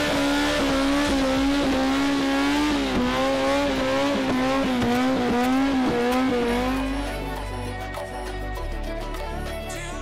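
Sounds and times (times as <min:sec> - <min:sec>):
engine at high revs: 0:00.0 - 0:07.4.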